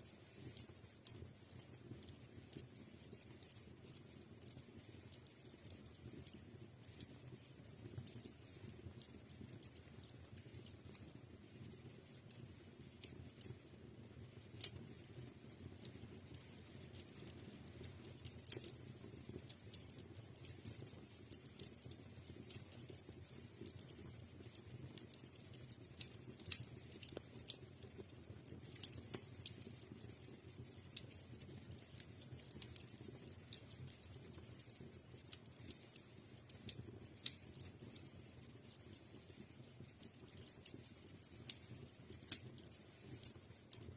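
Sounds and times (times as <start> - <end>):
wood fire crackling and popping: 0.0 - 43.9.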